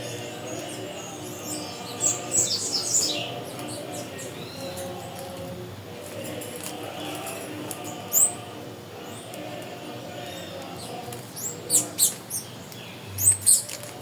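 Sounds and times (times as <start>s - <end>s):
low natural ambience: 0.0s - 14.0s
high-pitched bird chirps: 11.4s - 13.8s.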